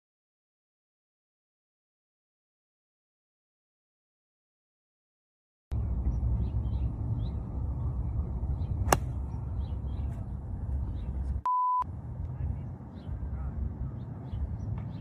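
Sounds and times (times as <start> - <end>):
sharp crack: 8.9 - 9.2
censor bleep: 11.4 - 11.8.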